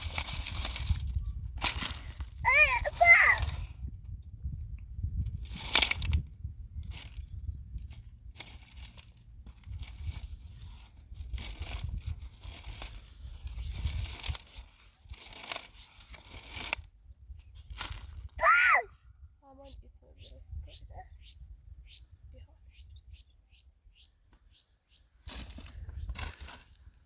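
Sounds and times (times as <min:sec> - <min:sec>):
rustling and crinkling handling noise: 0:00.0 - 0:03.8, 0:05.2 - 0:18.4, 0:25.2 - 0:27.0.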